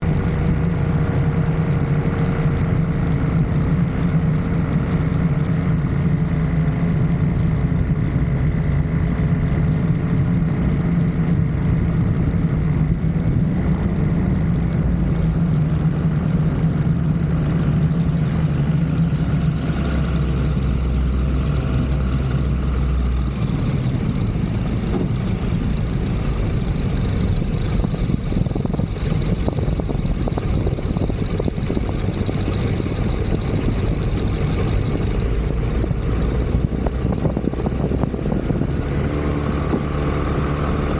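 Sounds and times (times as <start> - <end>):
light aircraft engine and propeller: 0.0 - 40.9
high whine: 15.8 - 40.9.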